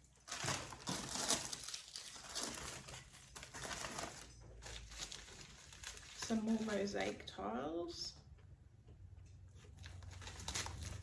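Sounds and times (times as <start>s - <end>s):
packaging crinkling: 0.0s - 7.2s, 9.8s - 11.0s.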